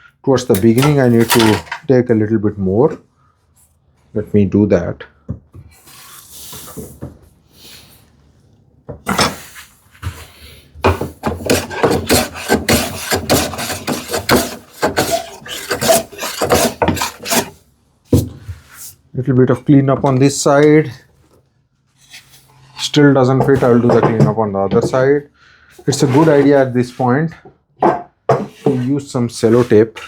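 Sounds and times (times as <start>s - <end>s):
handling noises: 0.6s - 1.9s
hand plane shaving wood: 10.9s - 17.6s, 25.8s - 27.1s, 28.4s - 30.0s.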